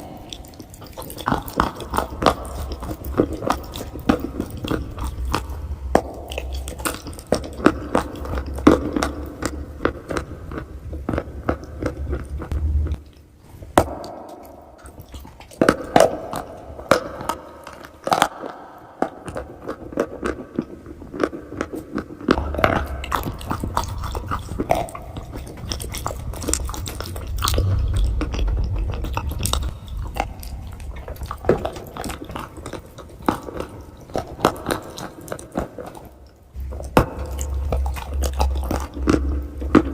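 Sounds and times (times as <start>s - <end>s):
chewing crunchy chalk: 0.0s - 39.9s.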